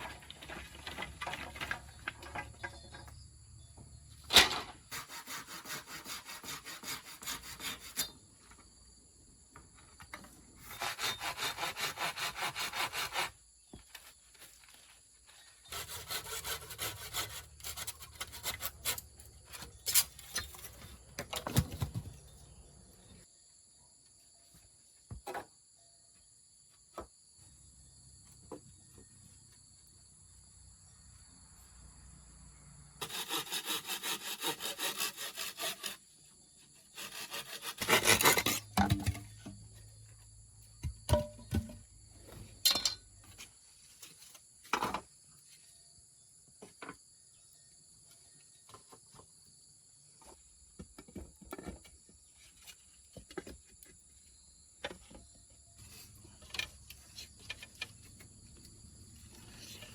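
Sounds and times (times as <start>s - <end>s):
hand saw cutting wood: 4.4s - 8.2s, 10.6s - 13.4s, 15.7s - 20.4s, 33.0s - 36.2s, 36.8s - 39.2s.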